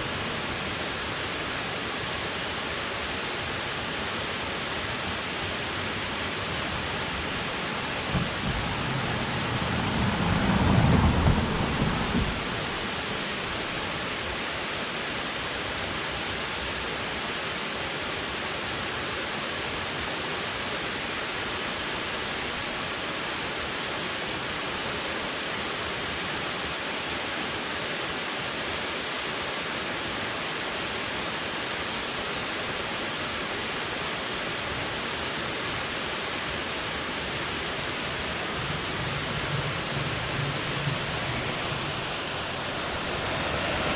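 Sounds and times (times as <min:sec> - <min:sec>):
river water rushing: 0:00.0 - 0:43.9
low rumble: 0:06.5 - 0:13.7, 0:37.8 - 0:43.4.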